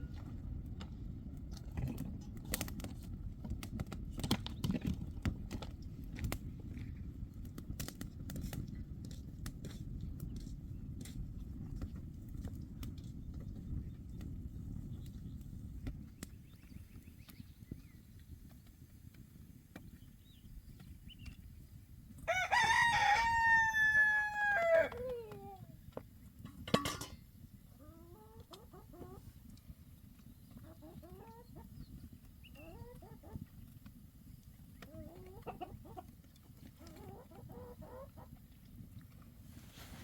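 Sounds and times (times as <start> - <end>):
low steady rumble: 0.0 - 40.0
rooster crowing: 22.3 - 25.1
chickens clucking: 27.7 - 29.6, 30.2 - 33.8, 34.4 - 38.6.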